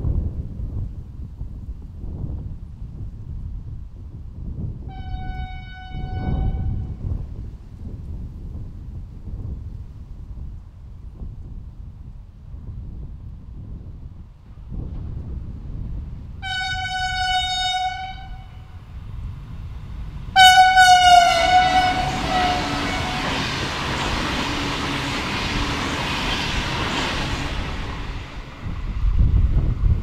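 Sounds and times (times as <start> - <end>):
train horn blasts: 4.9 - 7.0, 16.4 - 18.8, 20.4 - 23.8
train rushing past: 14.7 - 30.0.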